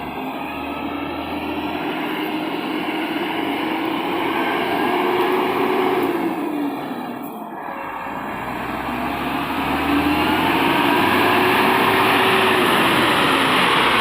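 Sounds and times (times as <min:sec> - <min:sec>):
truck diesel engine labouring: 0:00.0 - 0:14.0.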